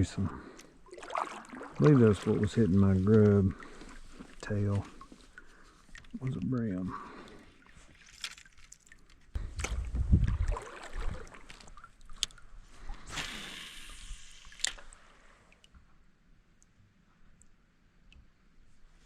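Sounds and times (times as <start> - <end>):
water sloshing: 0.0 - 13.2.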